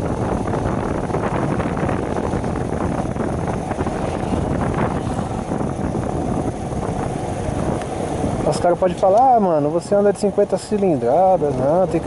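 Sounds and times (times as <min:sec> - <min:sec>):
small motorcycle engine: 0:00.0 - 0:09.1
road noise: 0:00.0 - 0:12.0
wind buffeting microphone: 0:00.0 - 0:12.0.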